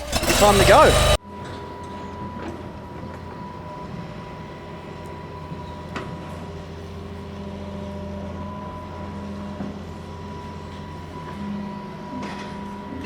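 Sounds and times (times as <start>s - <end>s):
earthmoving machine engine running: 0.0s - 2.1s.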